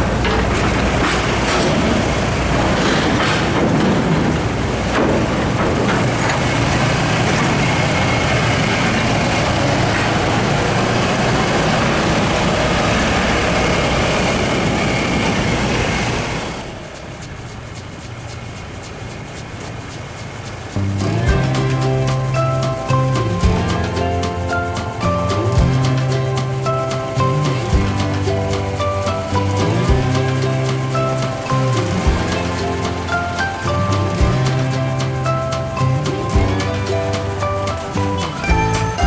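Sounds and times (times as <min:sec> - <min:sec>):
vehicle engine rumble: 0:00.0 - 0:39.0
music: 0:20.8 - 0:39.0.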